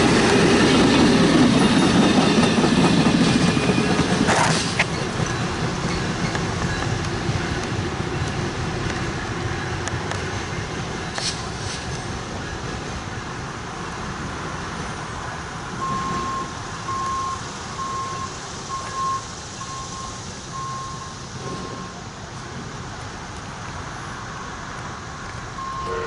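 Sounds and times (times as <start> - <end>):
electronic warning beeps: 15.8 - 22.0, 25.6 - 26.0.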